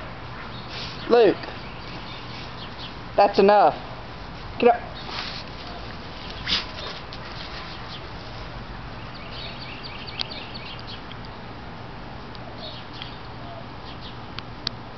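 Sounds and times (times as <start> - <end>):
steady low hum: 0.0 - 14.9
small birds chirping: 0.5 - 3.6, 4.8 - 11.6, 12.4 - 14.4.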